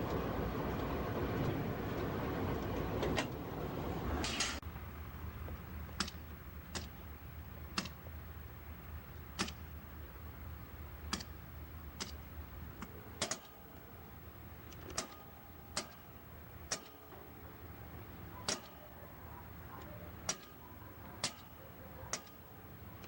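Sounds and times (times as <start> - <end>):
sharp clicks: 6.0 - 7.0, 7.7 - 8.0, 9.2 - 9.7, 11.1 - 12.2, 14.6 - 17.1, 18.4 - 19.0, 19.8 - 20.6, 21.2 - 22.4.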